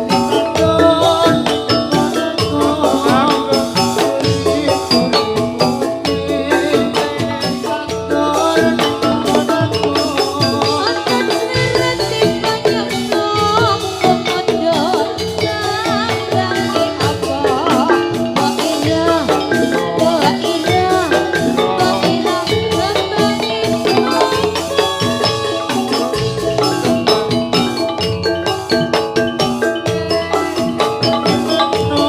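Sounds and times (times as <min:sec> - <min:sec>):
drumming: 0:00.0 - 0:32.0
wavering melodic line: 0:00.0 - 0:32.0.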